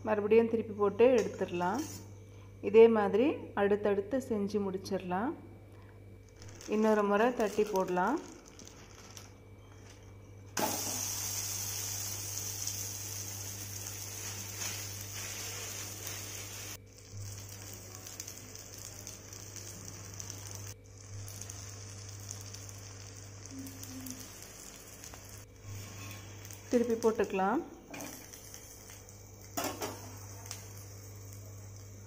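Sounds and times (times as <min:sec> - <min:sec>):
flatbread sizzling on a griddle: 0:10.6 - 0:27.0, 0:28.0 - 0:32.0.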